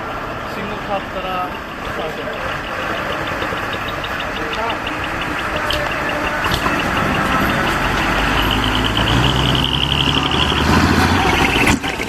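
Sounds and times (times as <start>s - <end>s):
diesel truck engine running: 0.0s - 12.0s
fast high-pitched ticking: 2.3s - 10.5s.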